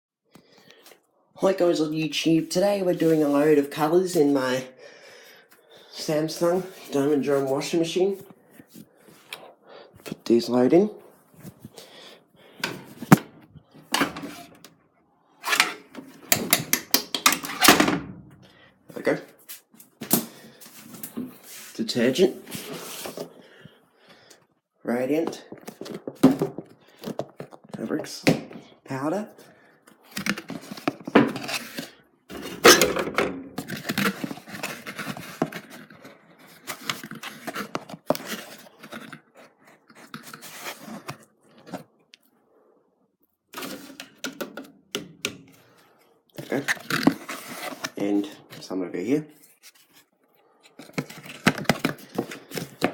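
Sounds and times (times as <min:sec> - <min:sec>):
plastic scoop scraping in box: 0:46.4 - 0:48.2.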